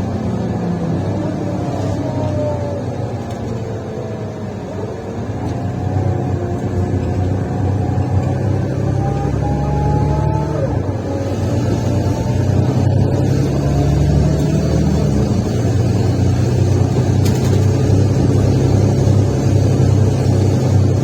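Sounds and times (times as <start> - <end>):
whine gliding in pitch: 0.0 - 15.5
bus engine drone: 0.0 - 21.0.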